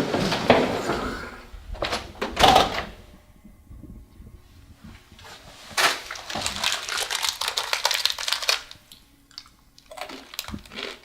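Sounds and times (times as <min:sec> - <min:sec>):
rustling and crinkling: 0:03.0 - 0:09.0.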